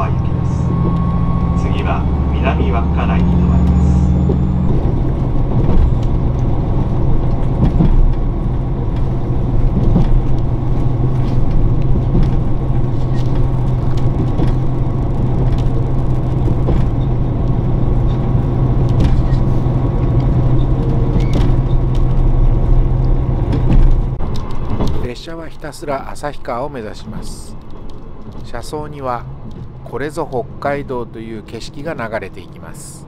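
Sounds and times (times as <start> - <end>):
wheels rolling on rails: 0.0 - 25.1
diesel engine drone: 0.0 - 33.0.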